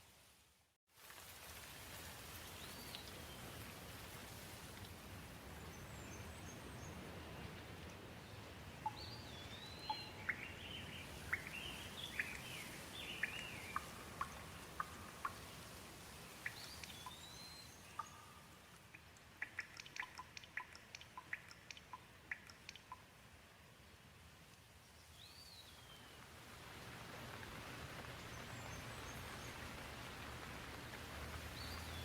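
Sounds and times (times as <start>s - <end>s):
light rain falling: 0.0s - 32.0s
birds chirping: 8.8s - 15.6s, 16.3s - 23.0s
single raindrops ticking: 11.3s - 23.3s.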